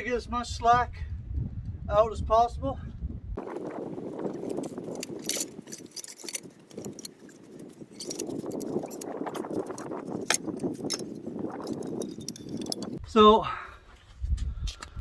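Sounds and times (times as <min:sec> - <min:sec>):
metal track links clinking: 0:04.4 - 0:13.0.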